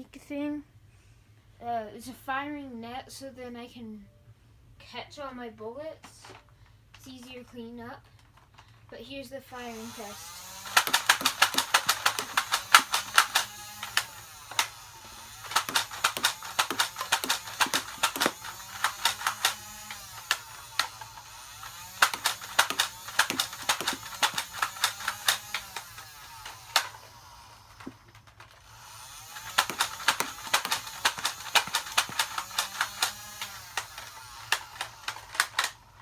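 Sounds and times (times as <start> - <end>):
flywheel motor hum: 9.6 - 36.0
toy blaster shots clicking: 9.7 - 36.0.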